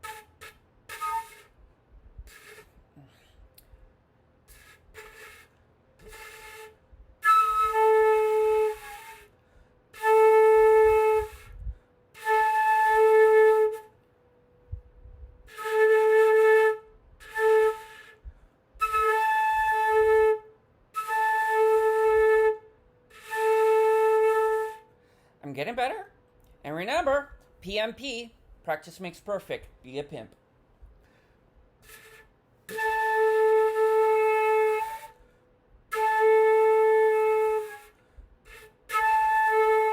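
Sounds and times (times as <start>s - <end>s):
flute held notes: 0.0s - 1.6s, 4.5s - 25.3s, 31.8s - 39.9s
breath noise: 2.2s - 4.9s, 18.2s - 18.7s, 25.0s - 25.4s, 30.8s - 31.7s.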